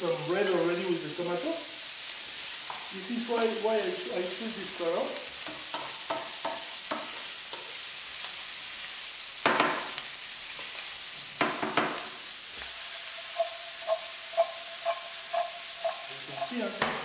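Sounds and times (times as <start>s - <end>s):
pepper sizzling in frying pan: 0.0s - 17.0s
wooden spoon scraping pan: 12.6s - 17.0s.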